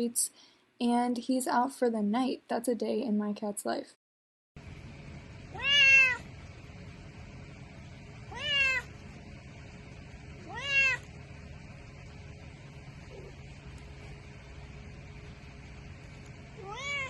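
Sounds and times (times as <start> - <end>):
steady low hum: 4.6 - 17.0
cat meowing: 5.5 - 6.3, 8.3 - 9.0, 10.4 - 11.2, 16.6 - 17.0.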